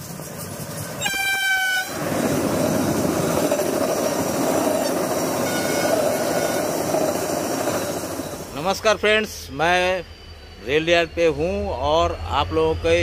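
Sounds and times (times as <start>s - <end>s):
train running on track: 0.0s - 13.0s
train horn blast: 1.0s - 2.0s, 5.4s - 6.8s.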